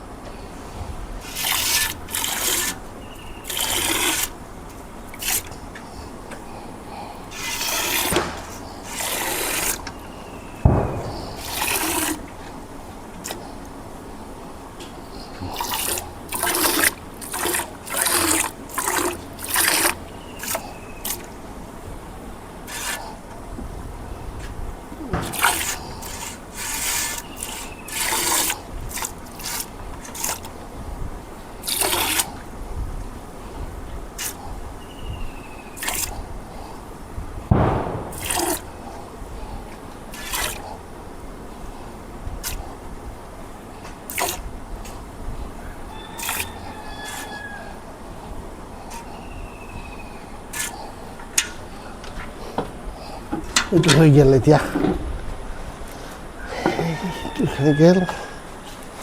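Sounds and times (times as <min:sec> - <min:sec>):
thump: 0:08.1 - 0:08.6, 0:10.6 - 0:12.1, 0:25.1 - 0:25.8, 0:37.5 - 0:38.7.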